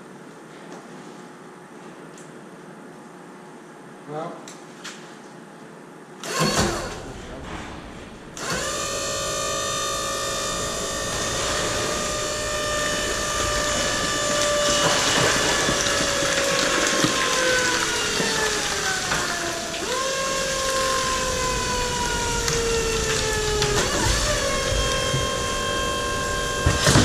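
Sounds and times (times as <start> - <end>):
baler motor whining: 6.2 - 27.0
clunk: 6.4 - 16.2.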